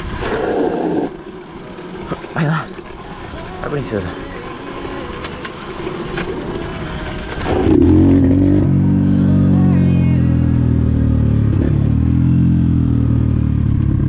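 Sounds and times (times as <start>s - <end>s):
motorbike engine running: 6.4s - 14.0s.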